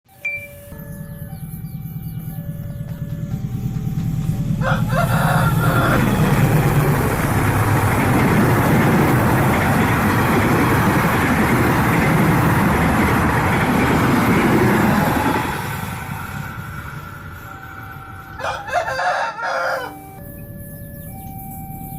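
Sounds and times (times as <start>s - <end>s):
passenger train passing: 0.2s - 20.8s.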